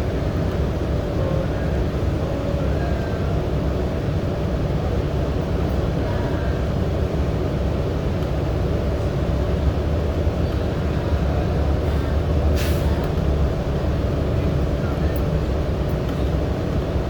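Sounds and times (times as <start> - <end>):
subway train wheels rumbling: 0.0 - 17.0.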